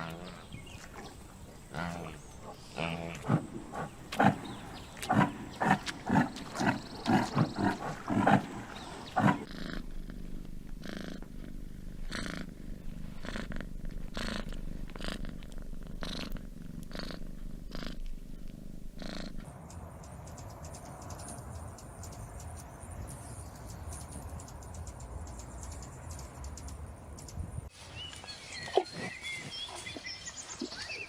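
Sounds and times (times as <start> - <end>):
cat purring: 0.6 - 19.5.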